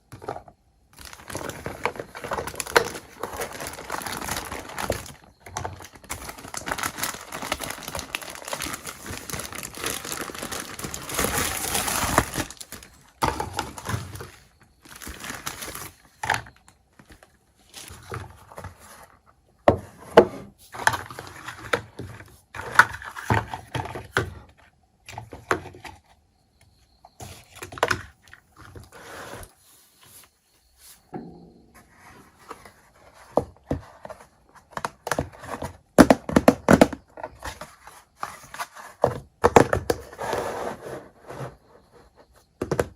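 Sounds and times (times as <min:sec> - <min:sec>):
plastic packaging crinkling: 0:00.9 - 0:18.6.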